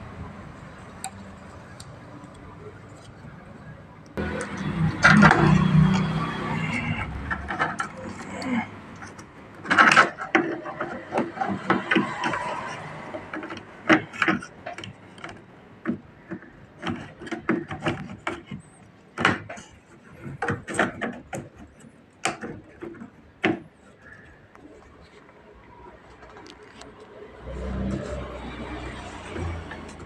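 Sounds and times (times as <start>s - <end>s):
parts scraping: 1.1s - 30.0s
clicks and knocks: 4.2s - 24.7s.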